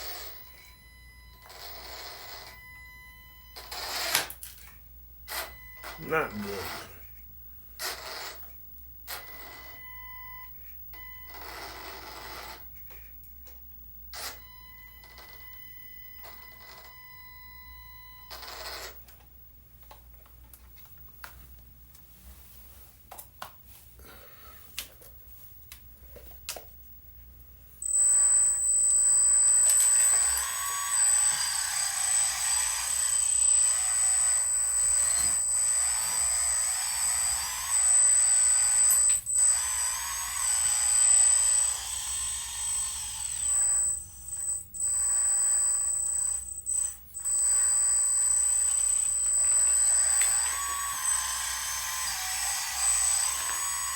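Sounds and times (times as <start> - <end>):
electric hydraulic pump whining: 27.8 - 53.9.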